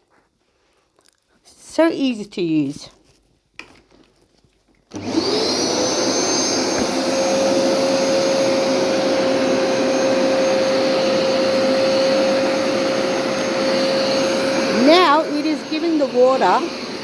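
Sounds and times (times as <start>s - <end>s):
carpet washer motor whine: 4.9s - 17.0s.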